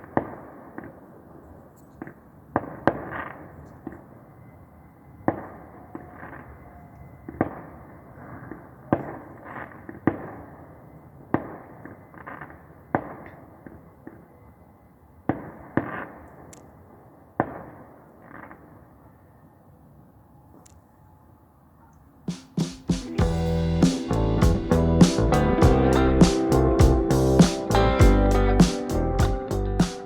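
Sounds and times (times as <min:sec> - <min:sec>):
fireworks bangs: 0:00.0 - 0:04.2, 0:05.2 - 0:14.2, 0:15.3 - 0:18.9.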